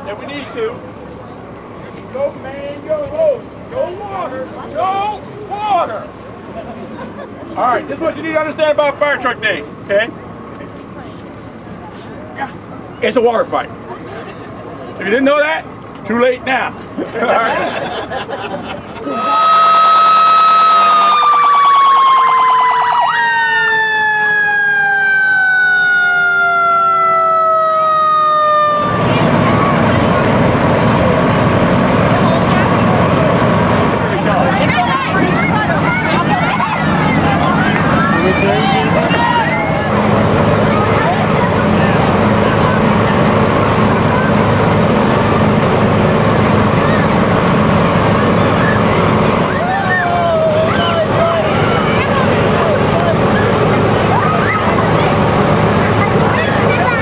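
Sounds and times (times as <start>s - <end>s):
continuous loud hiss: 0.0s - 22.0s, 28.8s - 57.0s
fire truck sirens wailing: 19.0s - 57.0s.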